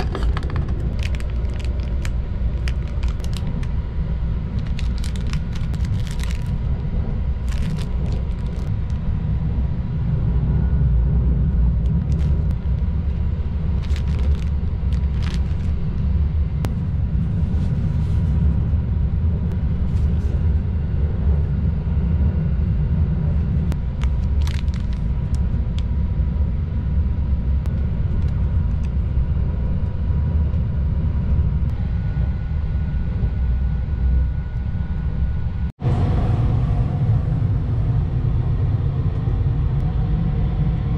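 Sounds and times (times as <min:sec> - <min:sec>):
plastic wrapping crinkling: 0:00.0 - 0:03.7, 0:04.5 - 0:06.7, 0:07.4 - 0:09.0, 0:12.0 - 0:12.4, 0:13.7 - 0:16.1, 0:24.0 - 0:25.4
train rumbling: 0:00.0 - 0:33.5, 0:34.6 - 0:40.9.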